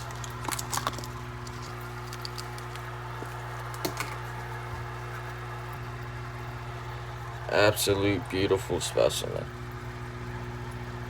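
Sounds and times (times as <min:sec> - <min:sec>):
handling clicks and rustles: 0:00.0 - 0:04.5
low electrical hum: 0:00.0 - 0:11.0.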